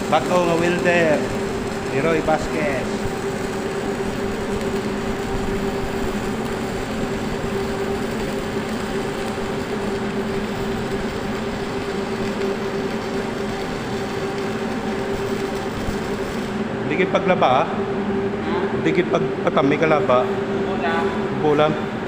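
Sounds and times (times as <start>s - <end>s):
welding crackling hiss: 0.0s - 17.0s
welding hum: 0.0s - 22.0s.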